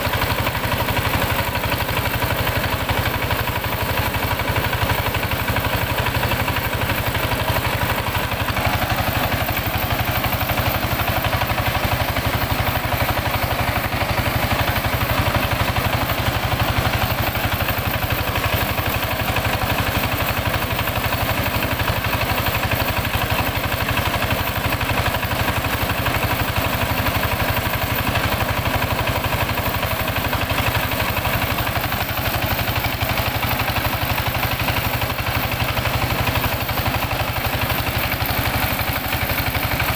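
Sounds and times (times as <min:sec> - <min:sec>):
rice huller machine running: 0:00.0 - 0:39.9.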